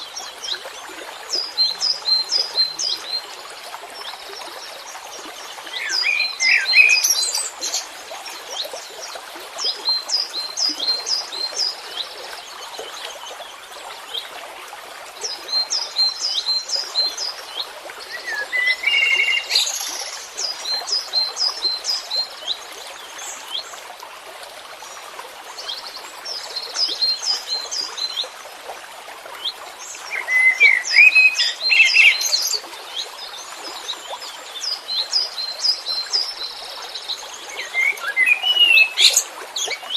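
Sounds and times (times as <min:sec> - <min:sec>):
songbird chirping: 0:37.5 - 0:39.8.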